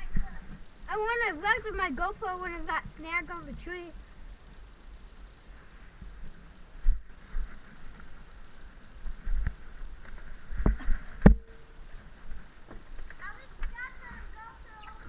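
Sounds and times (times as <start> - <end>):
sharp knocks and thumps: 10.6 - 11.6.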